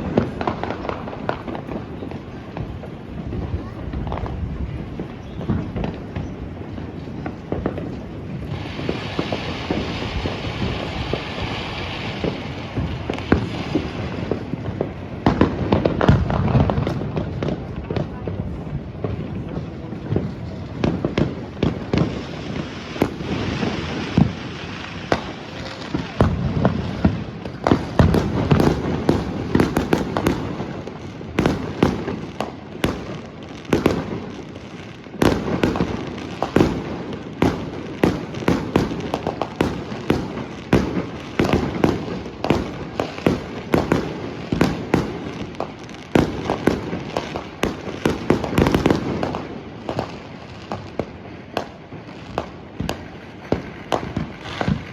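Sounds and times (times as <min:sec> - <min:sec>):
firecrackers popping: 0:00.0 - 0:54.9
fireworks booming and crackling: 0:00.0 - 0:54.9.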